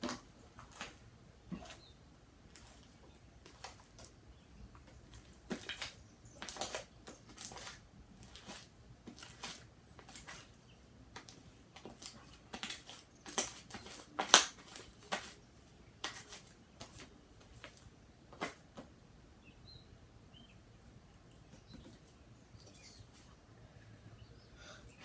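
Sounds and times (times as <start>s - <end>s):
slime squishing: 5.2s - 15.4s.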